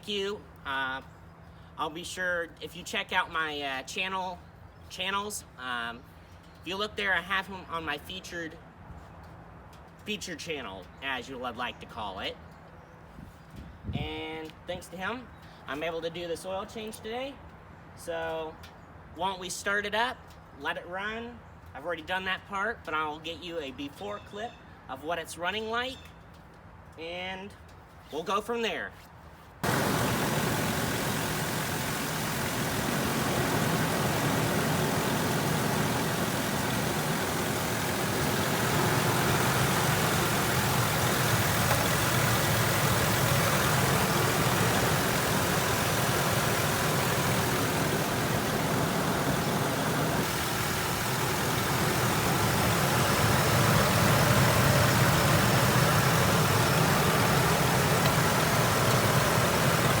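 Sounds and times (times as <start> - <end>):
truck engine idling roughly: 29.6 - 60.0.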